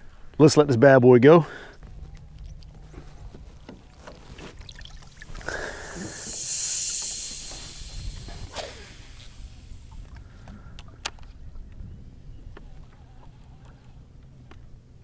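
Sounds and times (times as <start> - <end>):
fishing line running off reel: 4.4 - 10.4
lure landing: 4.6 - 10.3
fishing rod swish: 5.1 - 10.2.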